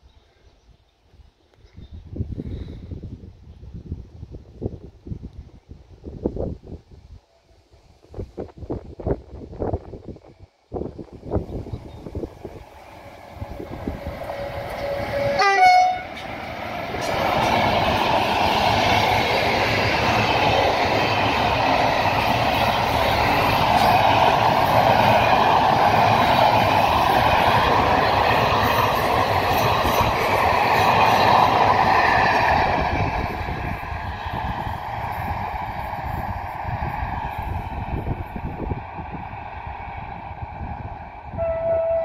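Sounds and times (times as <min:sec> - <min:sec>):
train wheels rumbling on rail: 0:08.2 - 0:42.0
electric locomotive horn: 0:13.4 - 0:16.2, 0:41.3 - 0:42.0.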